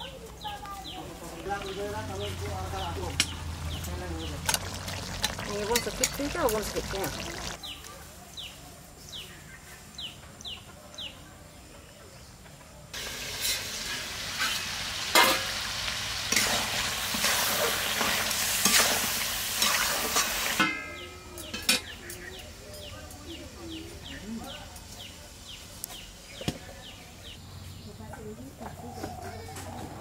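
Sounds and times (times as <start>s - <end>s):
bird chirping: 0.4s - 12.2s
curry sizzling in a wok: 1.2s - 7.6s, 13.0s - 25.7s
metal ladle scraping a pan: 13.0s - 15.6s, 16.3s - 20.8s.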